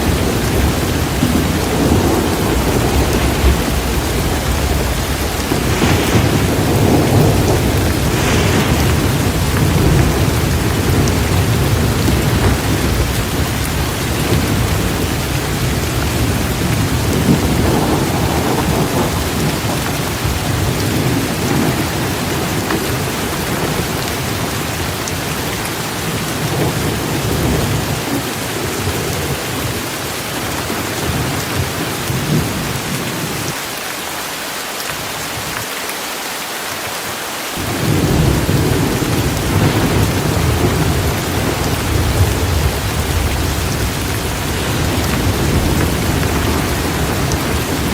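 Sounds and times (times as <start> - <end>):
thunder rumbling: 0.0 - 33.6, 37.6 - 47.9
steady rain: 0.0 - 47.9.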